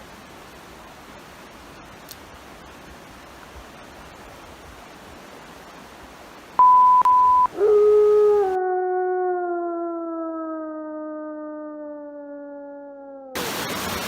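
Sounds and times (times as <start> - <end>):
high electronic beep: 6.6 - 7.5
creek rushing: 13.4 - 14.0.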